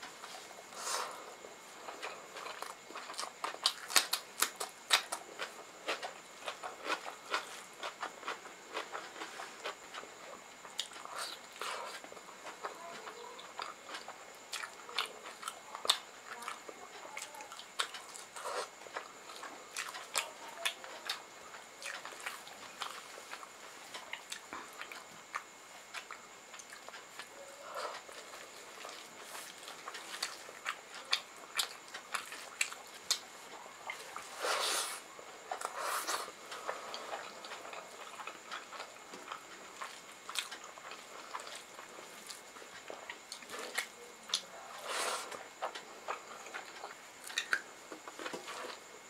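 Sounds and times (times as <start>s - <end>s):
chewing and mouth smacking: 21.8s - 34.3s, 36.5s - 44.5s, 45.3s - 48.8s.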